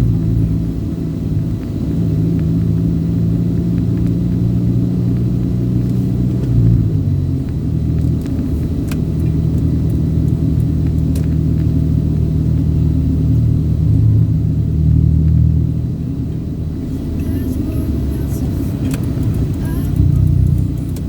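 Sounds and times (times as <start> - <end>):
vehicle engine rumbling: 0.0 - 21.0
faint clicks: 18.7 - 21.0.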